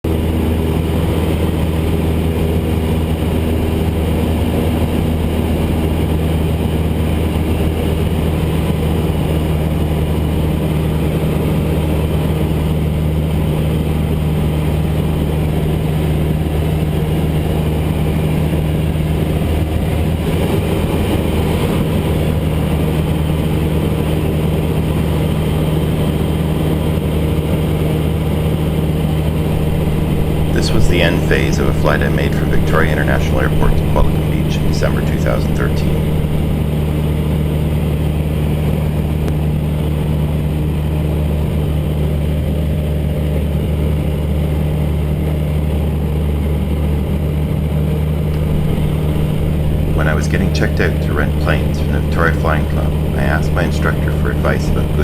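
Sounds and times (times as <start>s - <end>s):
propeller plane engine droning: 0.0s - 55.0s.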